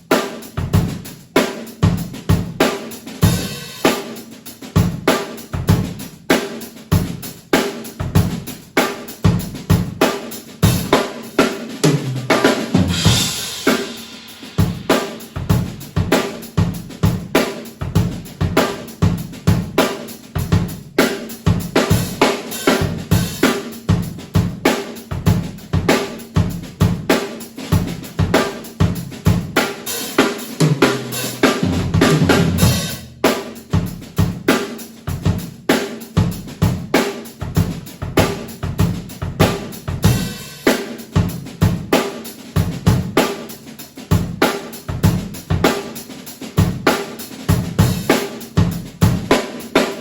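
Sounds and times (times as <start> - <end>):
drum kit playing groove: 0.0 - 50.0.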